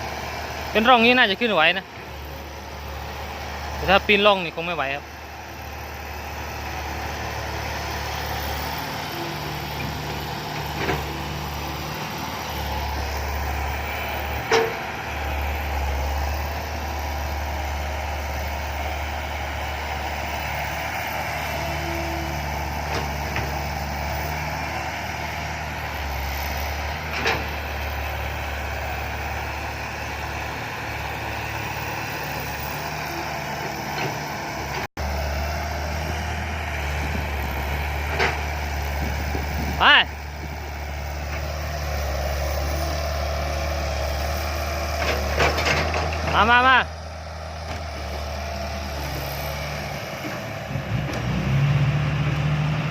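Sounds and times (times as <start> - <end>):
diesel truck engine running hard: 0.0 - 52.9.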